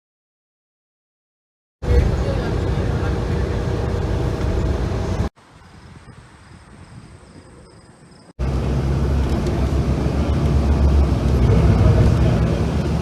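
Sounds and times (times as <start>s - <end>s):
aircraft engine rumble: 1.8s - 5.3s, 8.3s - 13.0s.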